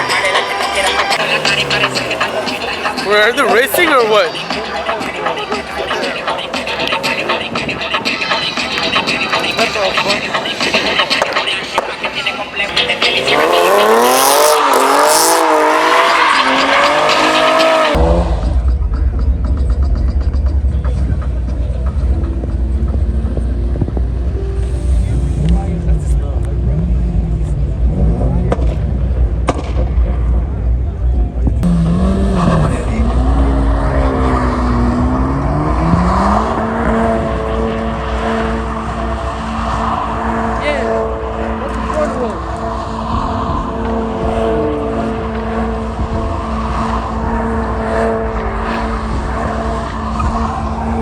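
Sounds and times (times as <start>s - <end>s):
car tyres squealing: 0.0s - 18.0s, 31.6s - 51.0s
engine and road noise: 0.0s - 51.0s
deep rumble: 18.0s - 40.2s.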